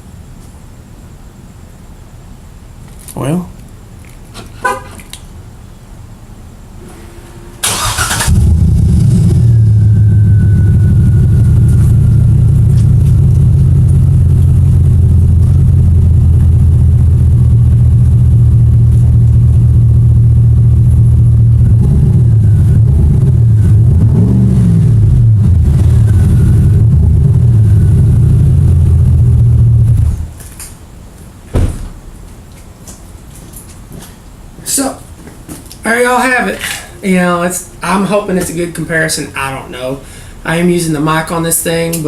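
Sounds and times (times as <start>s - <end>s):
engine starting: 6.8s - 9.5s.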